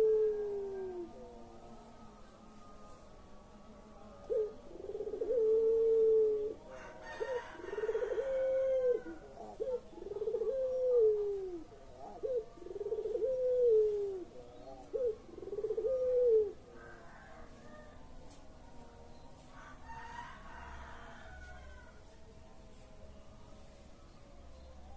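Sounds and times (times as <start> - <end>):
dove cooing: 0.0 - 1.4, 4.2 - 17.8.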